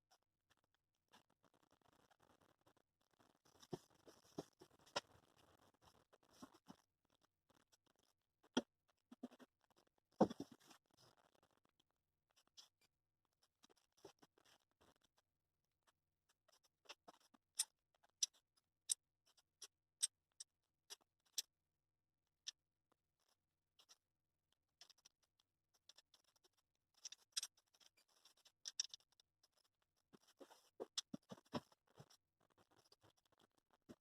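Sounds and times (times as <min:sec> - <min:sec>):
small clicks: 0:25.8 - 0:33.5.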